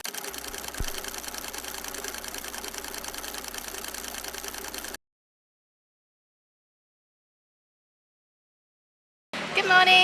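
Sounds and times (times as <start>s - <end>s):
fast mechanical clatter: 0.0s - 5.0s.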